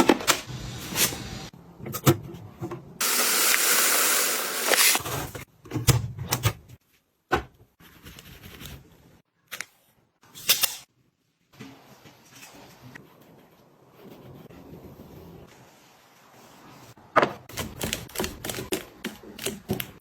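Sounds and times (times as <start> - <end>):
loud hiss: 3.0 - 5.0.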